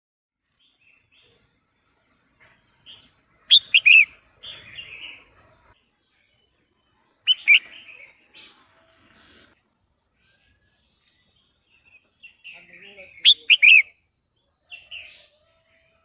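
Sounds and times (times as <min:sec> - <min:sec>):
bird calling sharp notes: 0:03.5 - 0:04.1, 0:07.3 - 0:08.0, 0:13.2 - 0:13.9.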